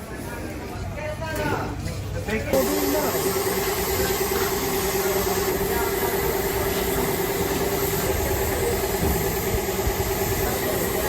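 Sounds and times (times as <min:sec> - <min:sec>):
motor humming: 0:02.6 - 0:11.0.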